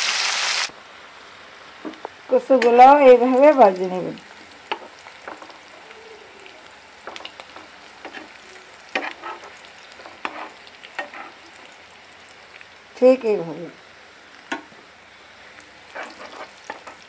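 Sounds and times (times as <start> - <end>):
slices sizzling in oil: 0.0 - 17.0
spatula scraping and tapping pan: 4.7 - 5.6, 7.0 - 11.4, 15.9 - 17.0.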